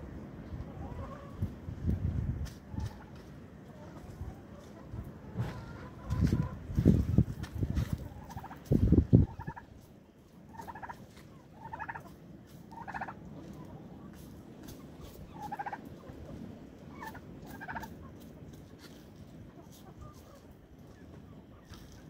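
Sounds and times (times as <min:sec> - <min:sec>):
turkeys gobbling: 0:00.5 - 0:01.4, 0:08.0 - 0:22.0.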